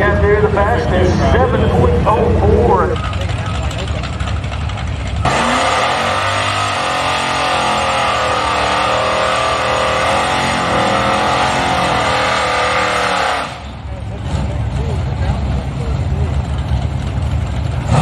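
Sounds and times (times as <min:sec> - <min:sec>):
racing engine at high revs: 0:05.1 - 0:15.8, 0:17.8 - 0:18.0.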